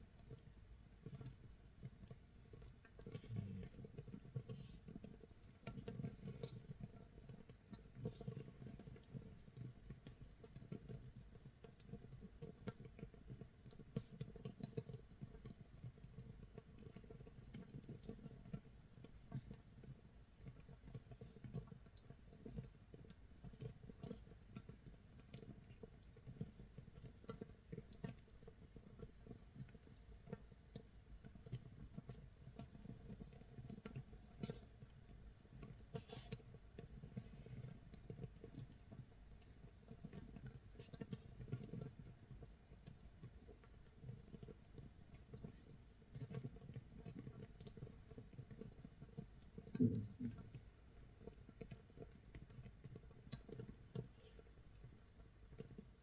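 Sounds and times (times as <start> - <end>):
tiny bubbles popping: 49.7 - 50.6.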